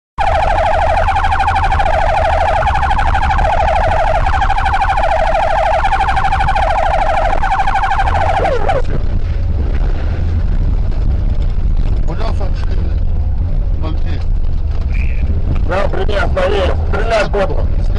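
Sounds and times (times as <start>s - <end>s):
warbling emergency siren: 0.2s - 9.0s
low vehicle rumble: 0.2s - 17.9s.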